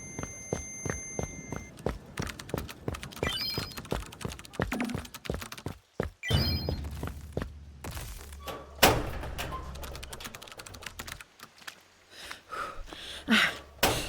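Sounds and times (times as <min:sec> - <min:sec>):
rapid keyboard-like clicking: 0:01.7 - 0:06.0, 0:09.8 - 0:11.8.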